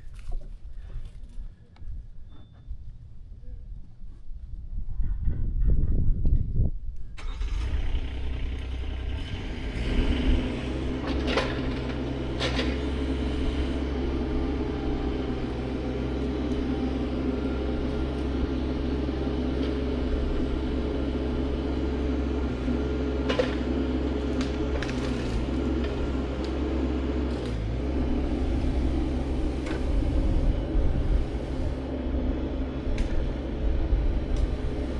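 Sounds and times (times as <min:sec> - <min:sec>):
engine starting and running: 0:07.1 - 0:34.9.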